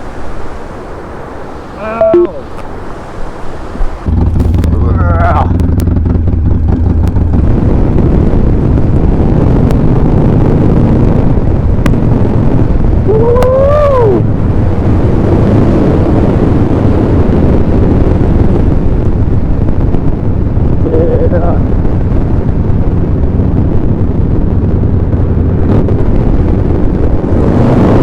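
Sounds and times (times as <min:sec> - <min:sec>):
wind buffeting on microphone: 0:00.0 - 0:28.0
short rising and falling call: 0:01.6 - 0:02.6
motorcycle running at speed: 0:03.5 - 0:28.0.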